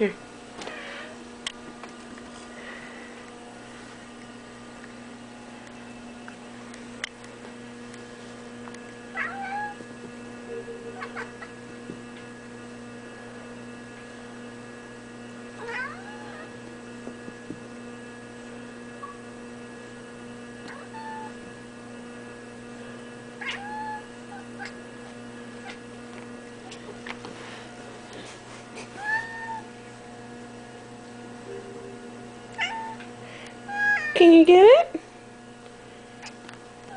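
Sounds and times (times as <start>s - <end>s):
electrical hum: 0.0s - 36.9s
kitten meowing: 23.4s - 24.1s, 29.0s - 29.7s, 32.6s - 33.1s.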